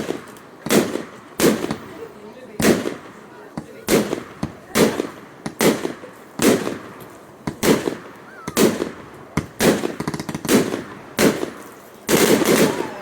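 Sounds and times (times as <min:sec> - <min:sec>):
firework crackling: 0:00.0 - 0:13.0
firework shells bursting: 0:02.6 - 0:13.0.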